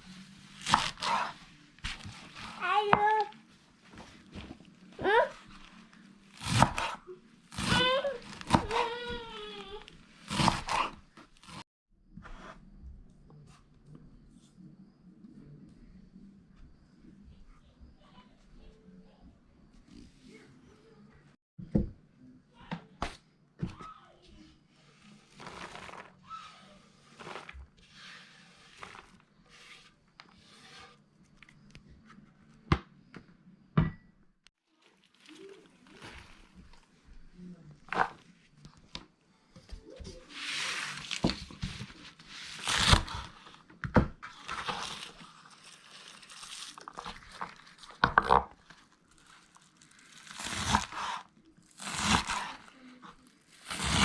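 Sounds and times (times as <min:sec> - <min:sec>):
crinkling rustle: 0:34.7 - 0:37.2, 0:44.3 - 0:48.0, 0:48.6 - 0:50.9.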